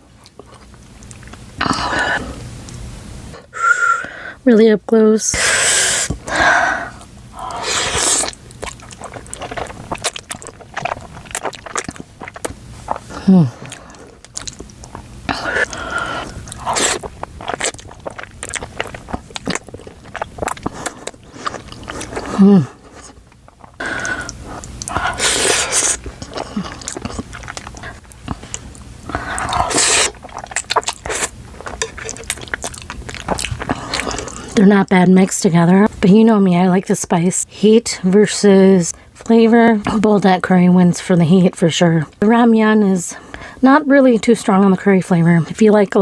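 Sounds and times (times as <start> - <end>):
wet mouth chewing: 0.2 - 1.5, 7.0 - 34.6
noodles slurped: 7.4 - 34.6.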